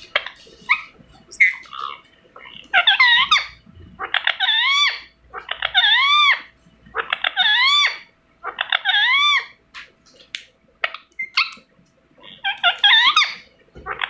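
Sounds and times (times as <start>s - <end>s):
parrot squawking: 0.1s - 9.9s, 12.2s - 14.0s.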